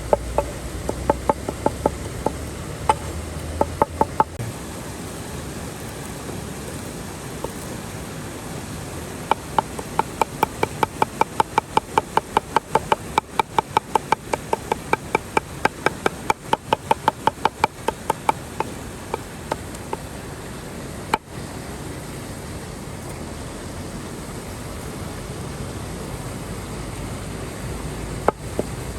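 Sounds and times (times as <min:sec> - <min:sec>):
knife chopping on wooden board: 0:00.0 - 0:04.4, 0:09.3 - 0:20.0
river water rushing: 0:00.0 - 0:28.9.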